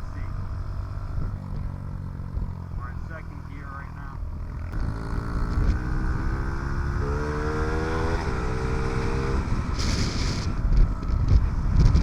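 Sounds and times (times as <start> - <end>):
small engine revving: 4.2 - 12.0
wind rumble on microphone: 4.8 - 12.0.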